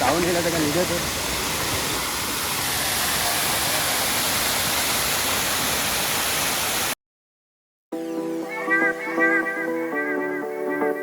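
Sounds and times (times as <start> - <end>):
waterfall roaring: 0.0 - 7.0
background music: 8.0 - 11.0.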